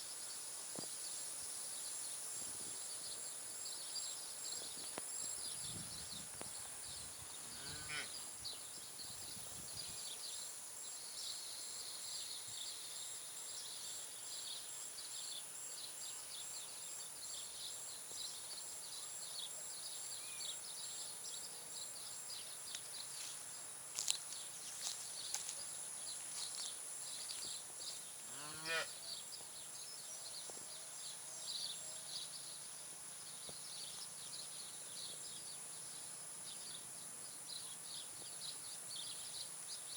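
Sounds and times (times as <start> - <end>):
sheep or goat bleating: 28.4 - 28.9.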